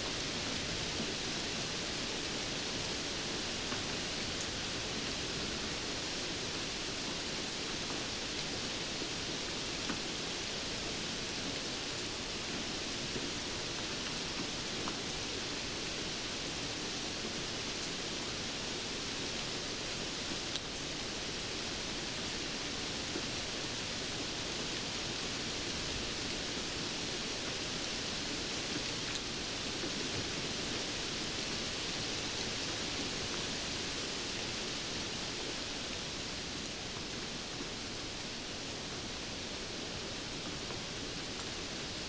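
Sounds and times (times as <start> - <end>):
steady rain hiss: 0.0 - 42.0.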